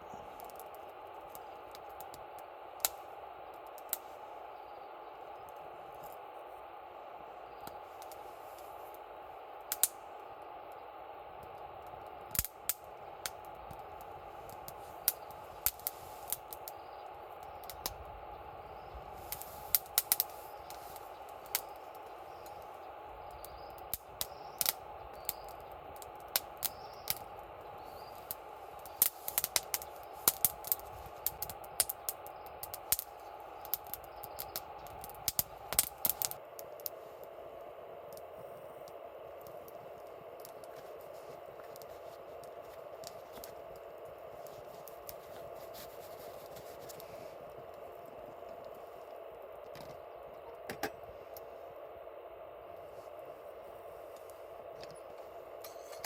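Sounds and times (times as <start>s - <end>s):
campfire wood crackling: 0.0s - 56.0s
steady hiss: 0.0s - 56.0s
sharp pops of fire: 0.1s - 4.2s, 7.6s - 37.3s, 38.1s - 47.9s.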